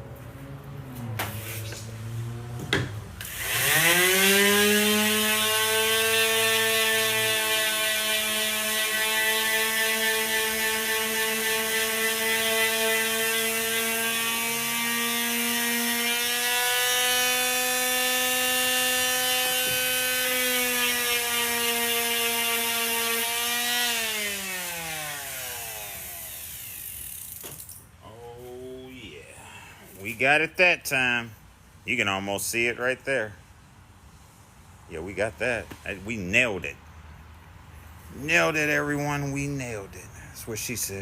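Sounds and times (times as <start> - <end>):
power tool motor whining: 1.3 - 27.8.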